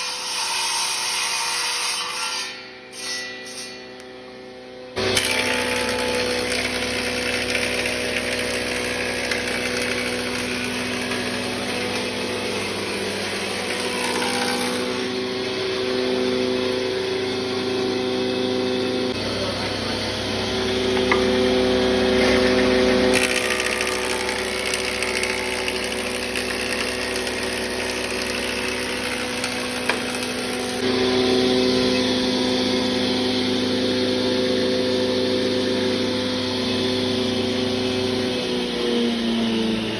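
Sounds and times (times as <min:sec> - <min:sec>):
power tool motor humming: 0:05.0 - 0:15.2, 0:19.1 - 0:31.0.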